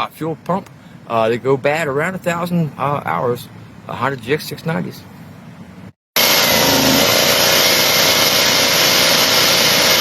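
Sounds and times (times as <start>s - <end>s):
engine running steadily: 5.0s - 10.0s.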